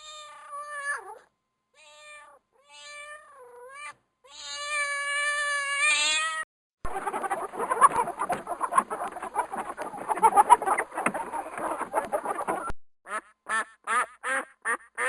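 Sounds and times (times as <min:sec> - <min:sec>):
overlapping animal calls: 0:06.9 - 0:12.7.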